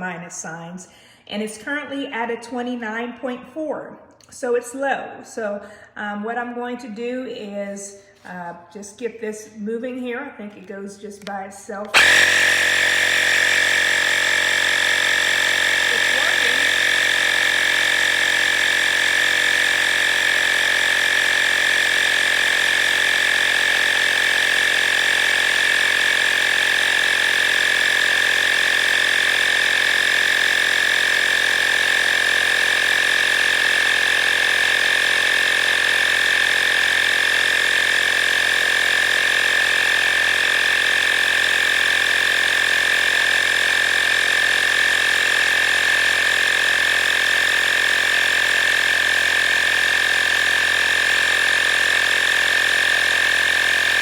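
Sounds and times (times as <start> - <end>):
tire inflator compressor drone: 11.8 - 54.0.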